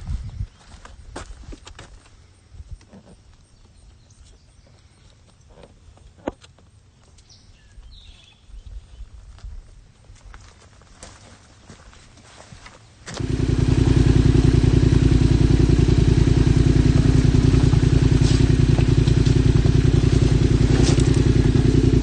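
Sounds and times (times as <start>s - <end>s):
motorcycle engine starting and idling: 13.1s - 22.0s.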